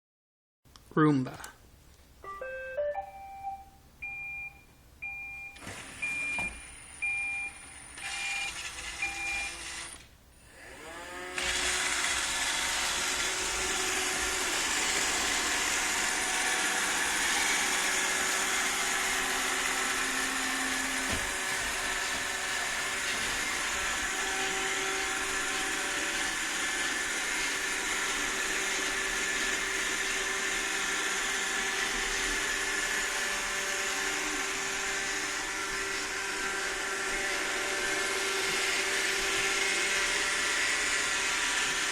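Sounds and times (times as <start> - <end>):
robot vacuum beeping: 2.4 - 10.0
robot vacuum motors whining: 5.6 - 41.9.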